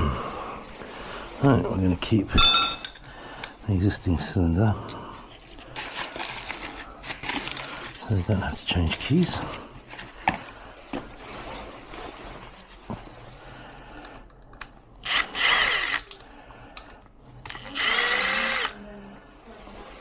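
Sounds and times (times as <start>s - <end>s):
power drill whining: 15.0s - 16.2s, 17.4s - 18.8s.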